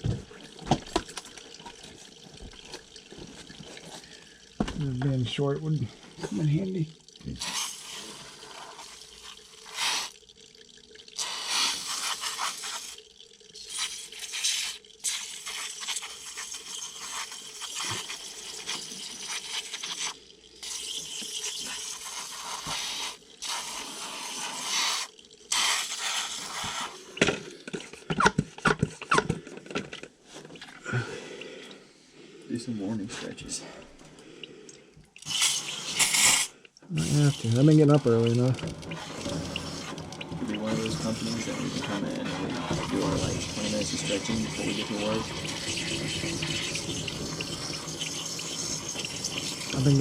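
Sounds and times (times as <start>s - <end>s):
water dripping: 0.0s - 50.0s
water spraying hiss: 7.3s - 10.2s, 11.2s - 13.0s, 13.6s - 27.2s, 35.2s - 50.0s.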